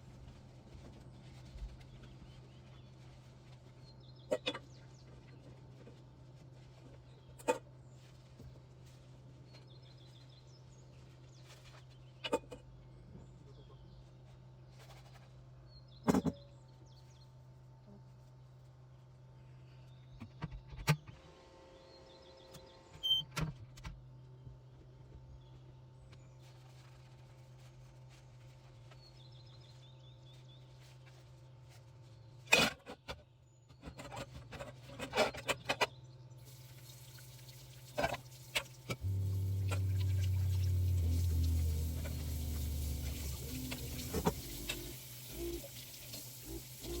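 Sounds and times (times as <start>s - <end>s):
steady low hum: 36.2s - 47.0s.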